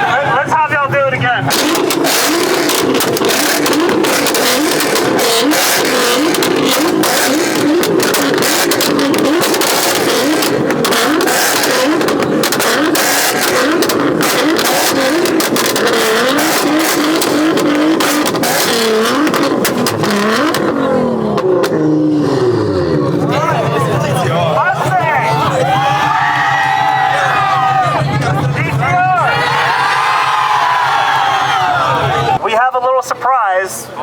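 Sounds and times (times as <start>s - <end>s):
car engine revving on limiter: 0.9s - 32.4s
exhaust pops and bangs: 1.4s - 29.2s.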